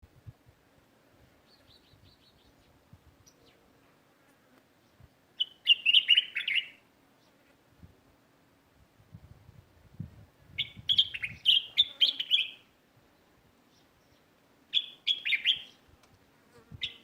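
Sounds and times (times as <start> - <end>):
small songbirds chirping: 1.4 - 3.7, 4.7 - 7.5, 10.5 - 17.0.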